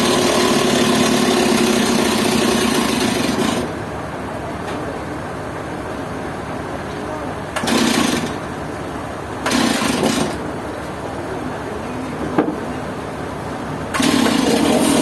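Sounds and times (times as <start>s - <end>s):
sawmill engine running: 0.0s - 15.0s.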